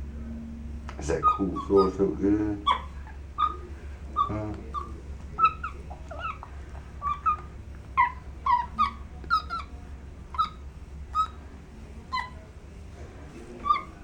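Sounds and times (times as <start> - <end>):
monkey chirping calls: 0.9 - 14.0.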